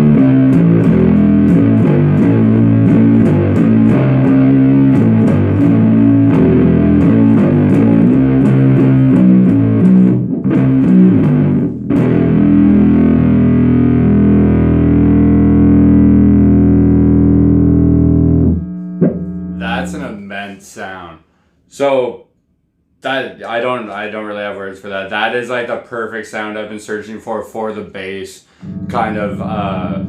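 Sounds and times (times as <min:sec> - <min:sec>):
fuzz bass guitar riff: 0:00.0 - 0:20.4, 0:28.5 - 0:30.0.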